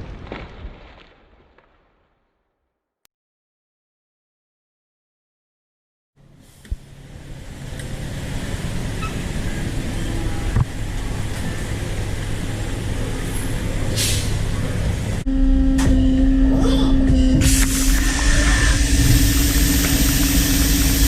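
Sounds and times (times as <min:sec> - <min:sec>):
short hiss: 0:13.9 - 0:14.4
lathe humming: 0:17.9 - 0:21.0.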